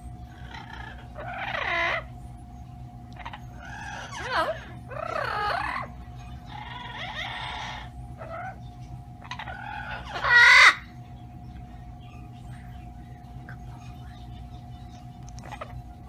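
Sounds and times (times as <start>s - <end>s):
parrot squawking: 0.2s - 2.1s, 3.2s - 8.6s, 9.2s - 11.0s, 15.4s - 16.0s.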